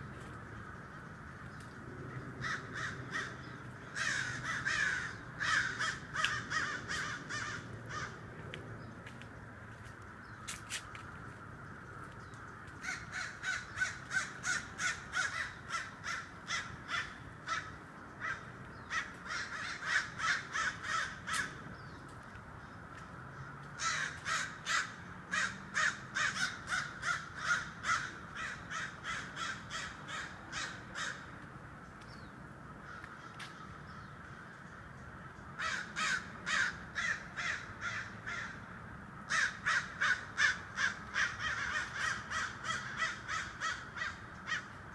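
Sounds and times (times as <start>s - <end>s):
birds giving harsh rapid calls: 12.8s - 21.7s.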